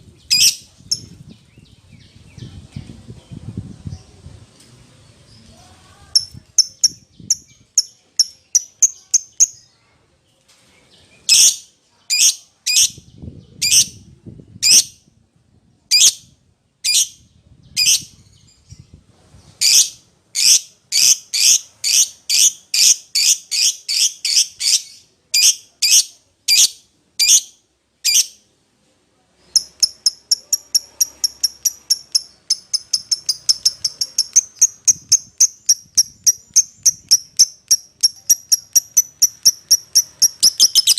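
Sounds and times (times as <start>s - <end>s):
lovebird shrill calls: 0.3s - 1.0s, 29.6s - 40.9s.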